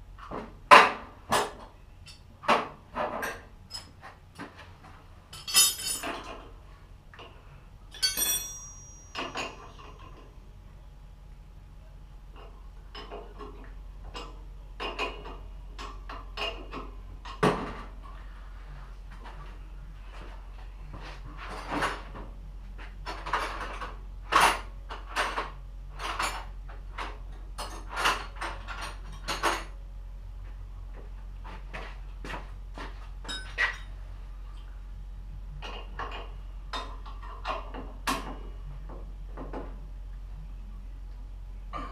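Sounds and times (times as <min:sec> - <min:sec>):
metal tools clinking: 0:05.3 - 0:06.4, 0:07.9 - 0:10.2.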